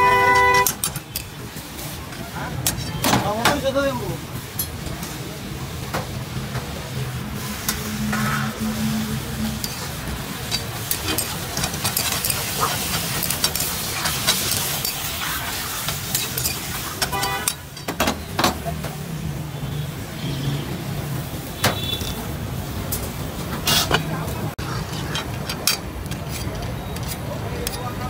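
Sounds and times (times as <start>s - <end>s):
food sizzling in a pan: 6.9s - 17.5s
ladle scraping an iron pan: 23.6s - 27.8s.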